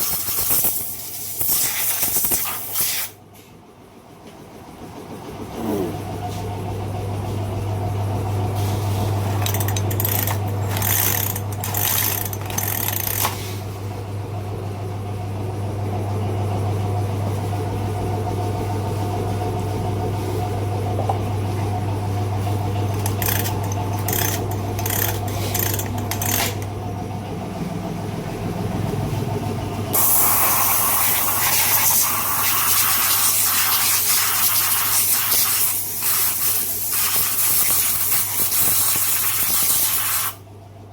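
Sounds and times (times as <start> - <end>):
low machine hum: 3.2 - 33.6, 40.4 - 40.9.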